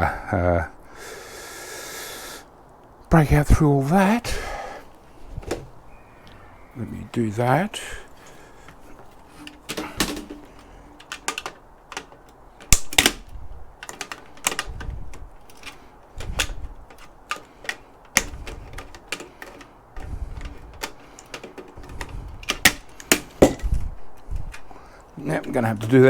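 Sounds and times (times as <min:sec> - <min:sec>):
dull thumps: 0:04.2 - 0:06.1, 0:07.0 - 0:17.5, 0:20.0 - 0:24.9
metallic tool clicks and knocks: 0:09.4 - 0:19.7, 0:20.4 - 0:23.8.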